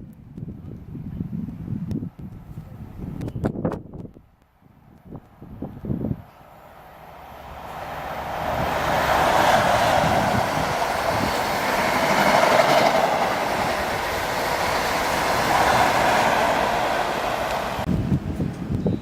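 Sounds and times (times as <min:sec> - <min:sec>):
train wheels rumbling on rail: 0:05.8 - 0:19.0.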